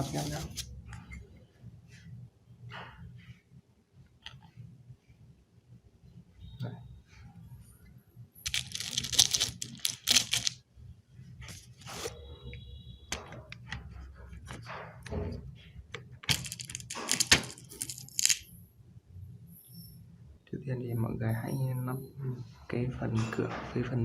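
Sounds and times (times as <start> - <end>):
plastic parts rustling and tearing: 8.4 - 10.6, 16.3 - 18.4.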